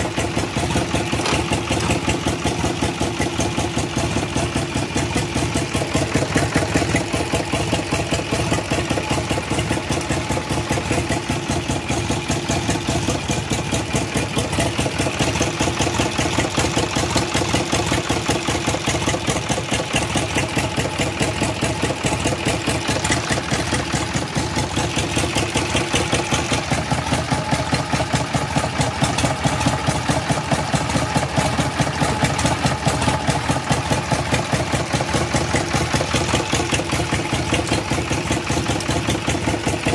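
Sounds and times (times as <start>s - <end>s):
diesel tractor engine idling: 0.0s - 39.9s.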